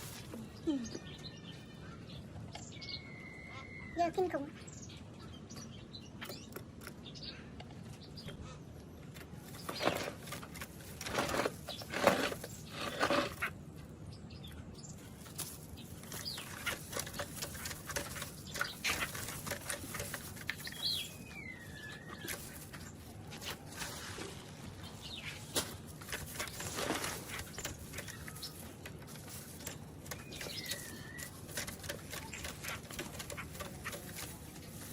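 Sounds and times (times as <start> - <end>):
bird rustling in cage: 9.3 - 13.6, 15.0 - 34.9.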